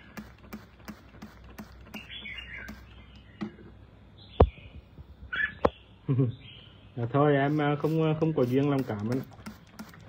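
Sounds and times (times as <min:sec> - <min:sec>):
bird chirping: 0:01.8 - 0:07.7.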